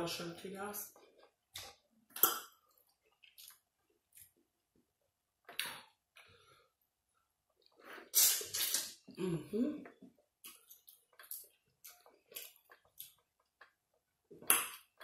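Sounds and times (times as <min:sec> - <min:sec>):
wet chewing and lip smacking: 0:01.0 - 0:04.4, 0:09.9 - 0:15.0.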